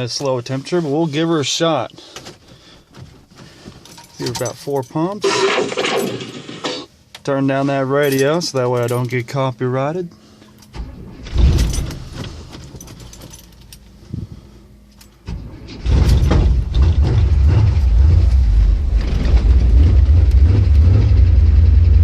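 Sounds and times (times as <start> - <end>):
car engine starting and rumbling: 10.2 - 22.0.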